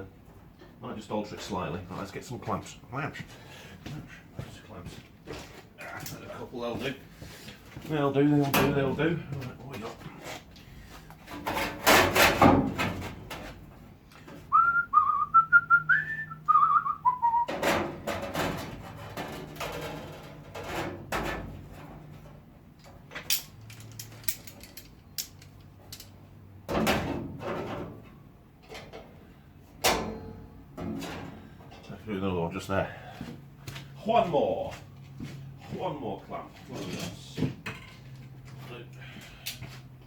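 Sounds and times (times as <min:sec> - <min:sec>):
man whistling a tune: 0:14.5 - 0:17.5
metallic clanks of hand clamps: 0:23.1 - 0:26.2.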